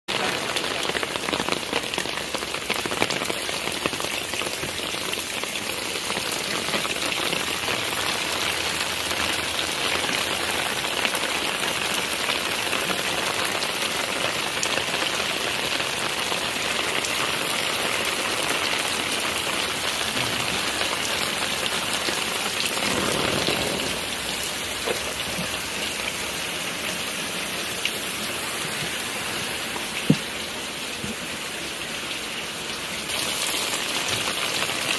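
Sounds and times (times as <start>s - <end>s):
rain pattering on ground: 0.1s - 34.9s.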